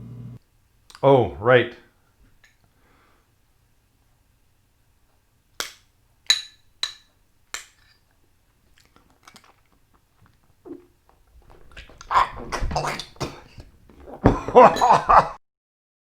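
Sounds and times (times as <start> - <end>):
faint chewing: 8.6 - 14.3
man making throaty noise: 11.7 - 15.3
utensil clinking on a dish: 14.2 - 15.2.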